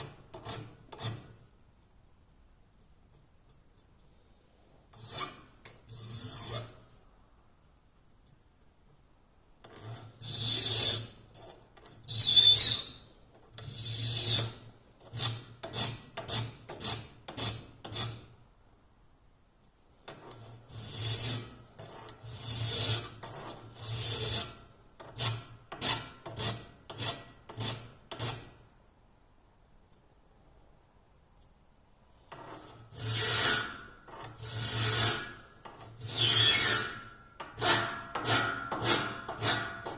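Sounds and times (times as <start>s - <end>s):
file rasping on saw blade: 5.0s - 6.8s, 9.7s - 13.0s, 13.6s - 18.2s, 20.1s - 28.5s, 32.3s - 39.9s.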